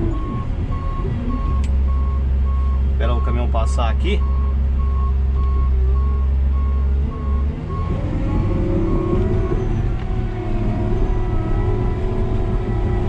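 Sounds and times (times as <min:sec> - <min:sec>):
bulldozer diesel engine drone: 0:00.0 - 0:13.0
reversing alarm beeping: 0:00.1 - 0:03.5, 0:04.2 - 0:08.0, 0:08.6 - 0:10.0.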